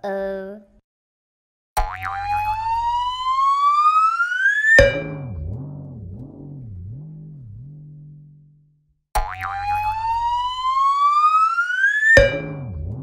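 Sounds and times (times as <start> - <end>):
low wobbling tone: 1.8 - 3.7, 4.8 - 11.1, 12.2 - 13.0
sharp knock: 4.8 - 6.5, 12.2 - 13.0.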